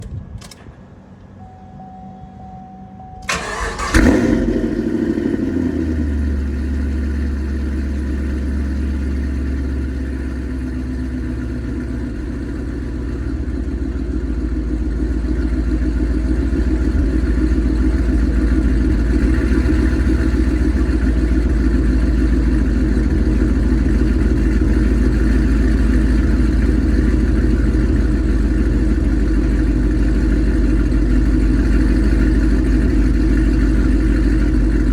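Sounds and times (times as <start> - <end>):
car engine starting and idling: 0.0 - 34.9.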